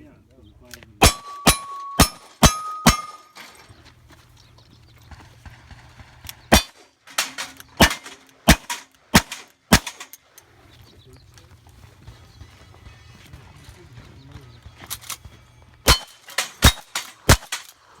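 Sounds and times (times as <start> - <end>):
gunshots: 1.0 - 3.4, 6.5 - 10.1, 15.9 - 17.7
steel targets ringing: 1.0 - 3.8, 6.5 - 10.1, 15.9 - 17.7.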